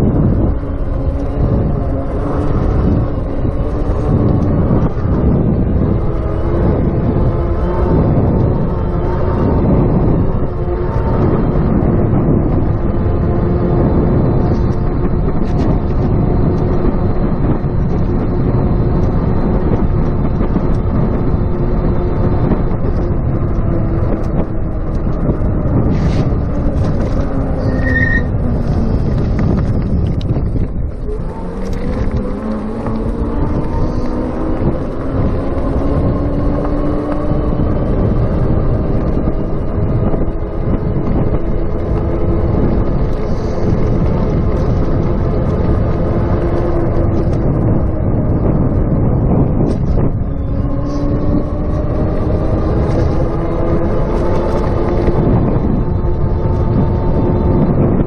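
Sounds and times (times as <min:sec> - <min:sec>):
wind rushing over microphone: 0:00.0 - 0:58.0
electric motor whine: 0:30.8 - 0:48.6.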